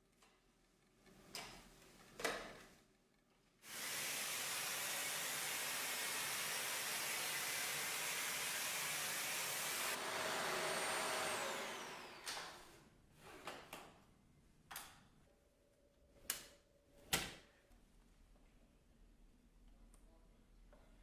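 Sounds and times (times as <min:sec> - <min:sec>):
vacuum cleaner motor running: 0:03.6 - 0:12.8
thin motor whine: 0:08.2 - 0:12.6.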